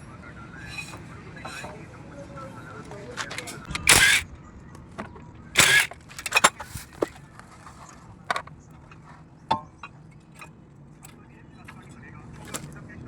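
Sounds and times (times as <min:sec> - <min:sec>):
loud metal scrape: 0:00.6 - 0:01.8, 0:03.7 - 0:04.2, 0:05.6 - 0:06.9
metal tools clicking and clanking: 0:00.6 - 0:01.8, 0:03.2 - 0:04.2, 0:05.6 - 0:07.2.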